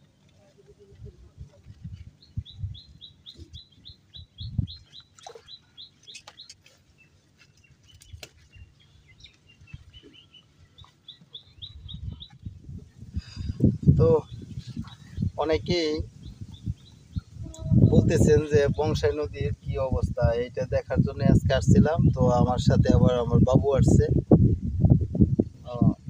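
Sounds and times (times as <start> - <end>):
small bird chirping: 2.1 - 13.0, 13.6 - 19.2.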